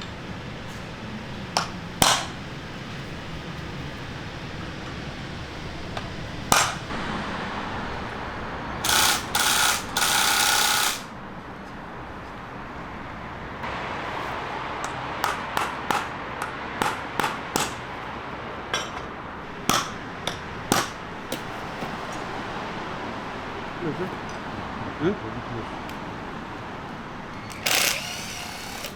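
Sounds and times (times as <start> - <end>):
hammer striking metal: 1.6 - 2.4, 6.5 - 7.0, 14.8 - 17.9, 18.7 - 21.5
loud noisy bursts: 6.5 - 11.2, 27.5 - 28.9.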